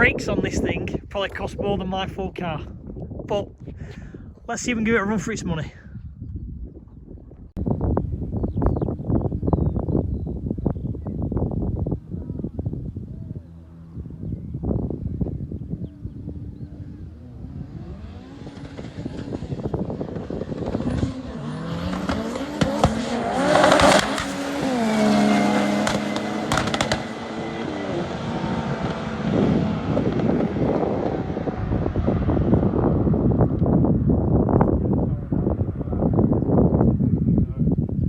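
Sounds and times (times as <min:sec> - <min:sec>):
racing car engines accelerating: 0:13.3 - 0:36.4.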